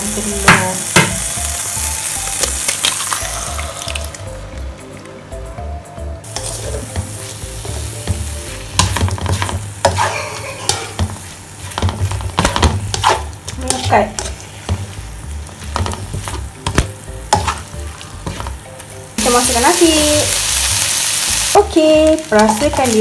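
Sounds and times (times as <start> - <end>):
food sizzling in a pan: 0.0 - 4.3, 6.2 - 23.0
spatula scraping a pan: 8.6 - 15.0, 17.3 - 18.5.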